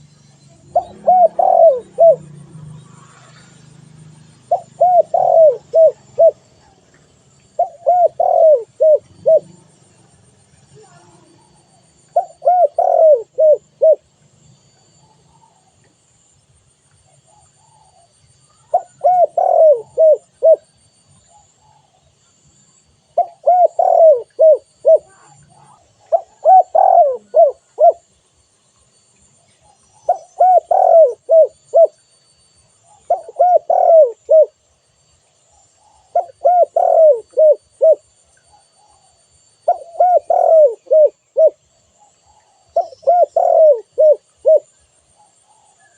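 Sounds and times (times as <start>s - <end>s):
dove cooing: 0.0s - 6.8s, 7.5s - 10.0s, 10.8s - 14.1s, 17.1s - 20.7s, 23.1s - 28.1s, 29.6s - 32.0s, 32.9s - 34.6s, 35.7s - 45.9s.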